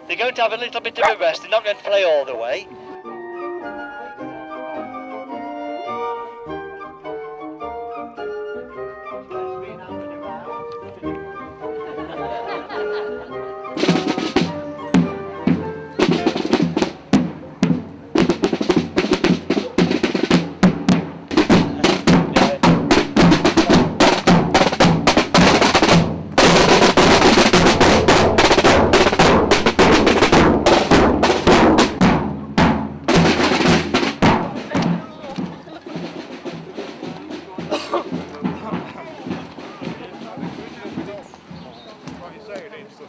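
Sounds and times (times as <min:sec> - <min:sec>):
snare drums marching rhythm: 0:00.2 - 0:02.5, 0:13.8 - 0:42.6
bass drum: 0:13.8 - 0:36.1.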